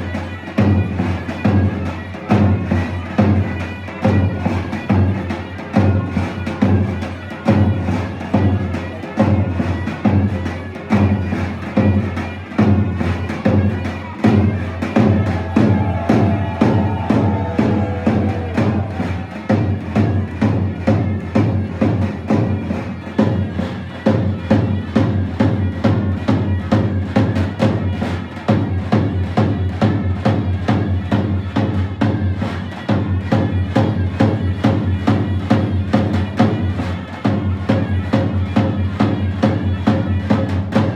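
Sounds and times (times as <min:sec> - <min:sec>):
fast drum beat: 0:14.2 - 0:21.3.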